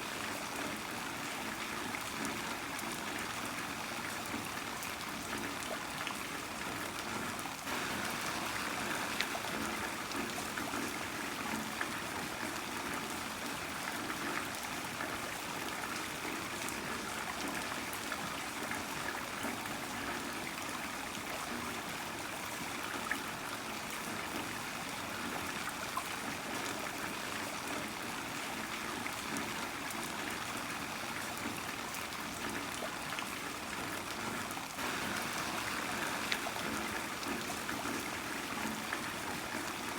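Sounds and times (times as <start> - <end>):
heavy rain falling: 7.7 - 12.4, 34.8 - 39.9.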